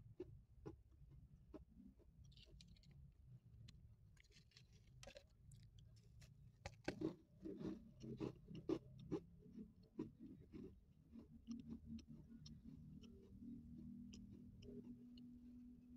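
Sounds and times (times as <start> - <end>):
chewing and crunching cookie: 0.2 - 15.9.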